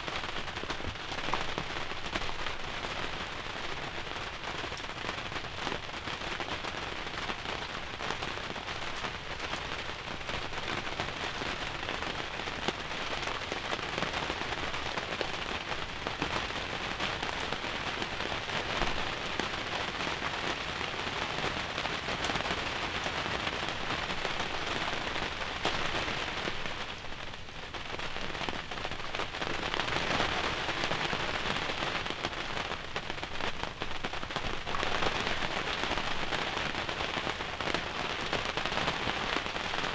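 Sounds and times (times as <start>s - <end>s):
rain pattering on a hide: 0.0s - 39.9s.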